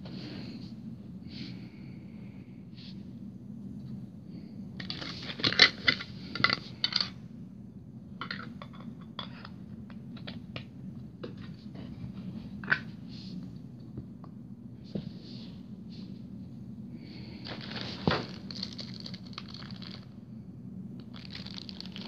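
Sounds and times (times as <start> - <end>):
small hard objects clattering: 17.5 - 20.1, 21.0 - 22.0.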